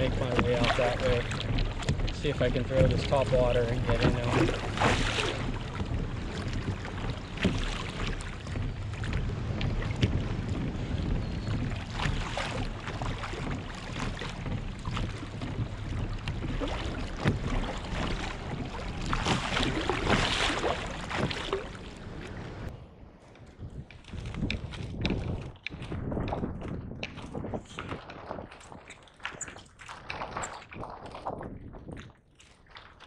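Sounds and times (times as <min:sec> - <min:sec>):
paddle splashing in water: 0:00.0 - 0:22.7, 0:23.7 - 0:33.0
wind rumbling on microphone: 0:00.0 - 0:33.0.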